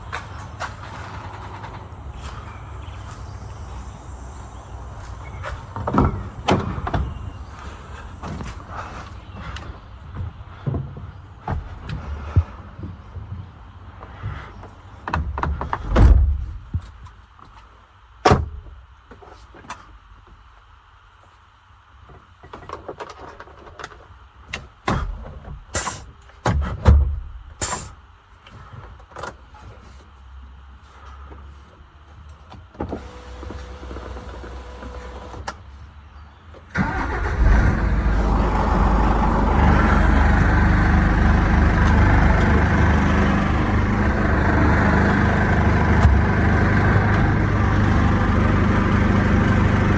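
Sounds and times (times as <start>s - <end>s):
truck diesel engine rumbling: 0.0s - 15.8s, 36.7s - 49.9s.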